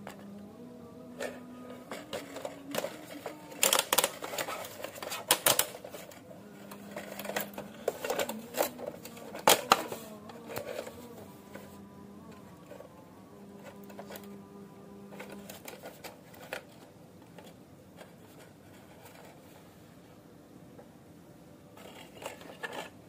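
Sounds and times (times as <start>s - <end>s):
hard objects being handled: 0.0s - 20.1s, 21.7s - 23.0s.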